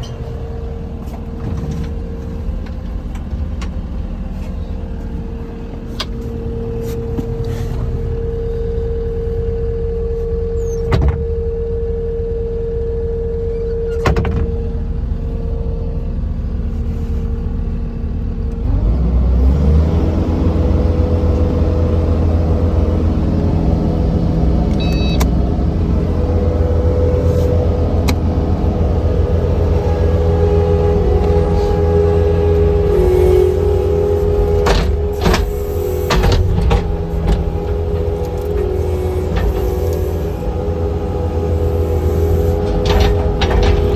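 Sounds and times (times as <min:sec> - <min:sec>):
diesel engine whining: 0:00.0 - 0:43.9.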